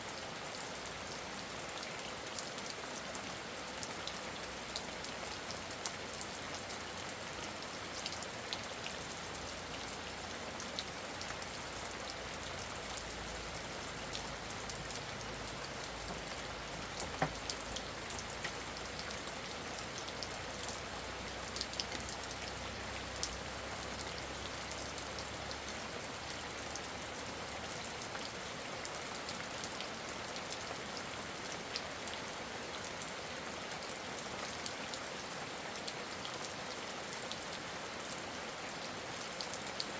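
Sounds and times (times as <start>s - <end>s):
steady rain falling: 0.0s - 39.9s
raindrop ticks: 15.8s - 19.2s.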